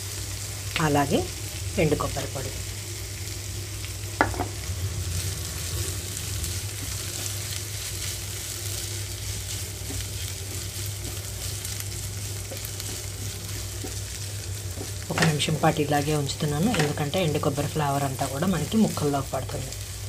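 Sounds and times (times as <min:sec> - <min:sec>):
vegetable slices sizzling in oil: 0:00.0 - 0:20.0
wooden spatula scraping pan: 0:09.3 - 0:15.3.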